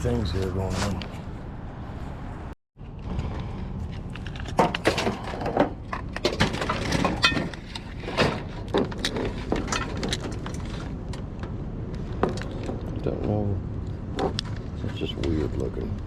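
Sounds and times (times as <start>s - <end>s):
scrap clattering in dumpster: 4.5s - 10.9s.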